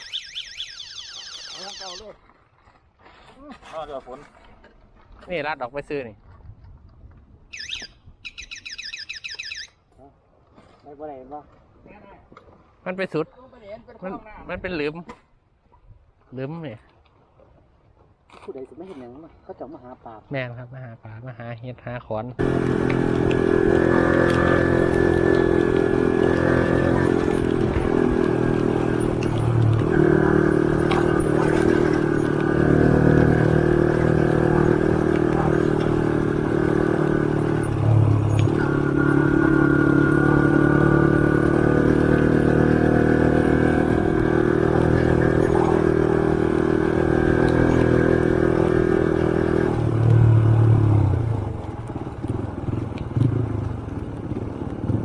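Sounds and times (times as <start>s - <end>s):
motorcycle engine running: 22.4s - 55.0s.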